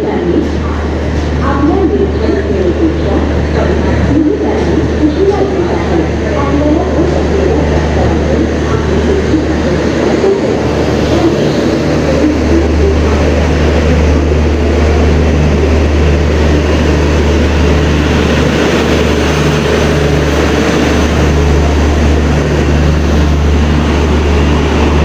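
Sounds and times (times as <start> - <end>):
train rumbling past: 0.0 - 25.0
diesel generator running: 6.0 - 25.0.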